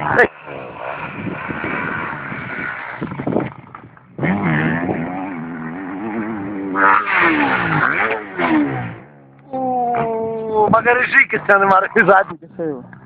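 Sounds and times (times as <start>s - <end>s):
motocross bike engine revving: 0.0s - 9.5s.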